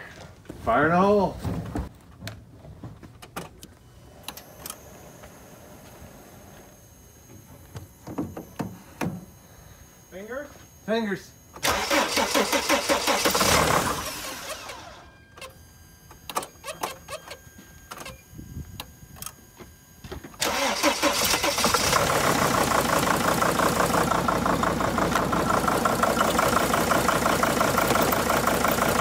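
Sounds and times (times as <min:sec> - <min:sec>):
diesel engine cranking: 0:11.5 - 0:18.2, 0:20.3 - 0:29.0
diesel engine running rough: 0:11.6 - 0:15.0, 0:20.4 - 0:29.0.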